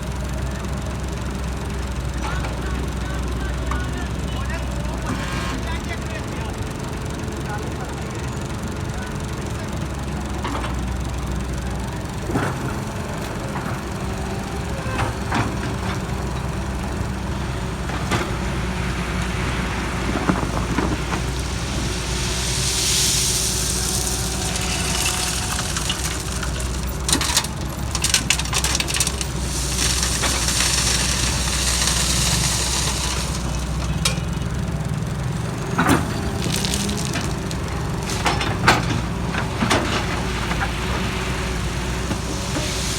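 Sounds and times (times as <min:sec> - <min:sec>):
excavator diesel engine running: 0:00.0 - 0:42.9
metal knocks and clanks: 0:14.9 - 0:22.7
loud hiss: 0:15.7 - 0:27.1, 0:29.2 - 0:33.9, 0:40.2 - 0:42.9.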